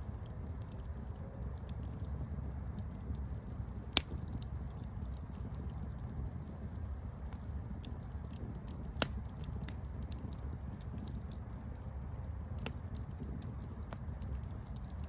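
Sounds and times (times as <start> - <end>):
campfire crackling: 0.0 - 15.0
sharp pop of fire: 3.9 - 4.4, 8.9 - 9.4.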